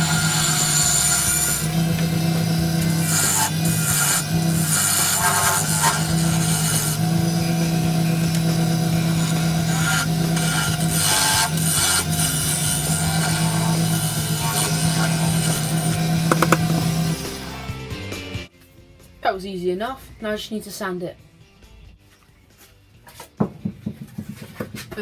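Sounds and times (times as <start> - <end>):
tool scraping spinning wood: 0.0 - 17.7
lathe motor hum: 0.0 - 17.9.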